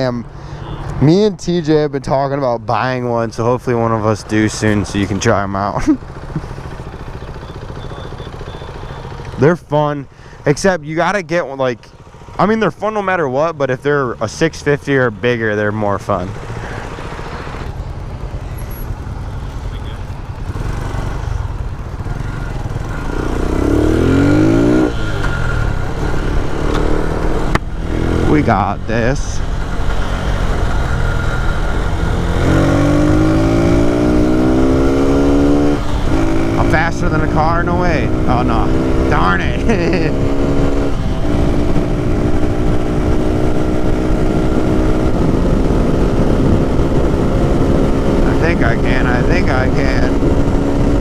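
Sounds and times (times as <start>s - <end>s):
motorcycle engine accelerating: 0.0s - 51.0s
wind rumble on microphone: 40.9s - 51.0s.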